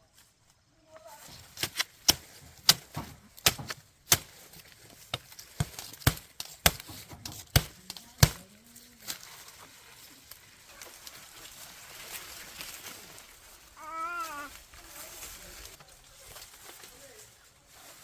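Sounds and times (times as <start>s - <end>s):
sharp chopping strikes: 1.6s - 4.5s, 5.1s - 8.4s.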